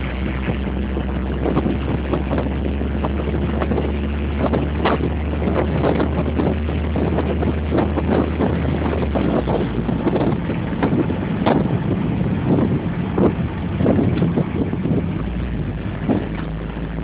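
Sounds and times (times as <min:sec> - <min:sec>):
car engine droning while driving: 0:00.0 - 0:17.0
wind buffeting the microphone: 0:00.0 - 0:17.0.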